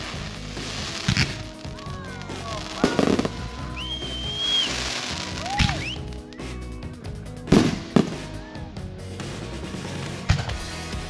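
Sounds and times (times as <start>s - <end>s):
fireworks bangs: 0.0s - 6.4s, 7.5s - 8.6s
fireworks whistling: 0.0s - 6.7s, 7.5s - 8.6s.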